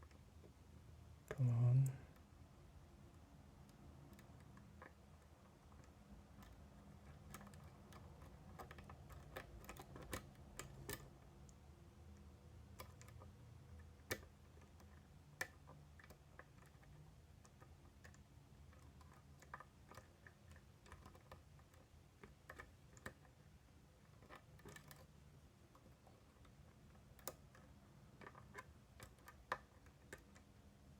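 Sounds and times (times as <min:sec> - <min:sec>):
lock picks clicking in a lock: 0:06.3 - 0:11.4, 0:12.6 - 0:30.6.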